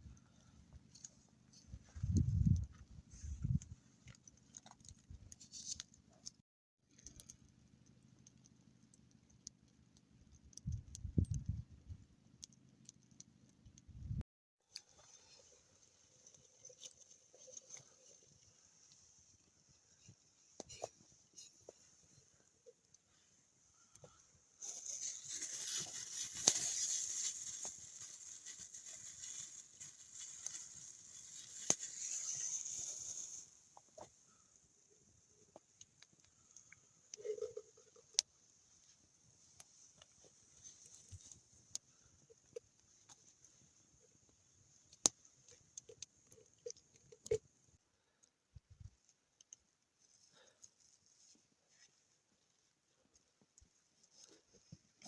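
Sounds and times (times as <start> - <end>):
faint steady hiss: 14.7 - 55.0
small clicks and light taps: 48.2 - 49.7.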